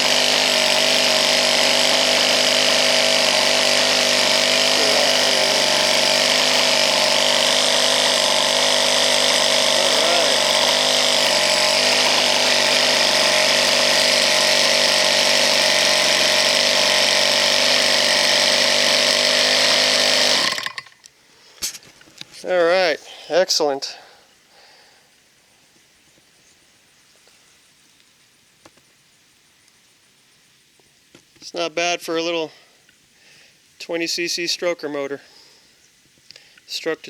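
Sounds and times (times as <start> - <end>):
small two-stroke engine running: 0.0 - 21.0.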